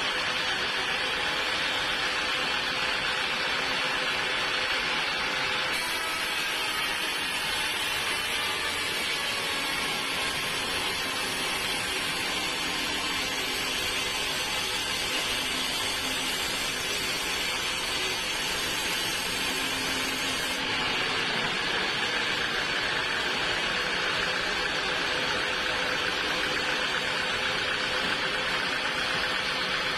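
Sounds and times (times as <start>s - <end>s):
sawmill machinery running: 0.0s - 29.9s
steady machine whine: 0.0s - 29.9s.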